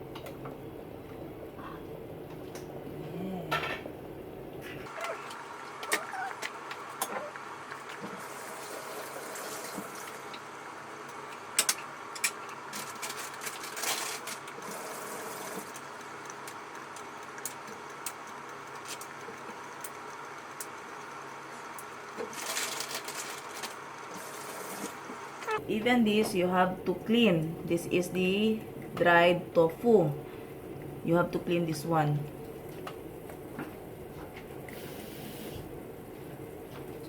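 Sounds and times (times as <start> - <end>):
steady background hum: 0.0 - 37.0
scraping or rustling: 22.2 - 23.8.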